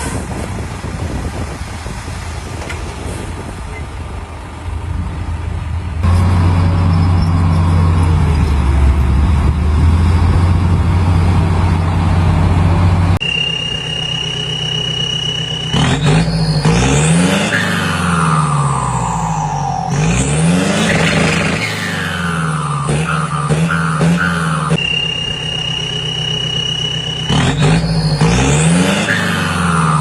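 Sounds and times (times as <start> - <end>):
diesel engine low drone: 0.0 - 30.0
high whine: 9.8 - 30.0
gliding whistling tones: 13.2 - 30.0.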